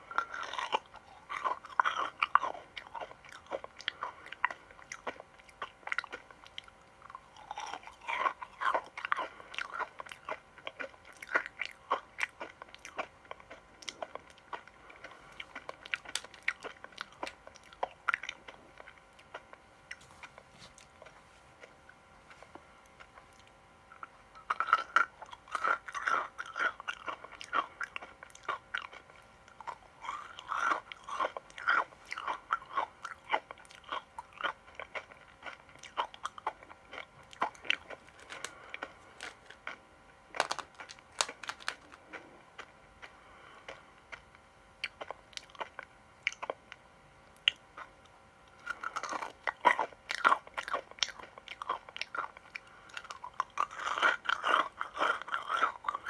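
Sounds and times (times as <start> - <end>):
person crunching crisp sweets: 0.0 - 56.0.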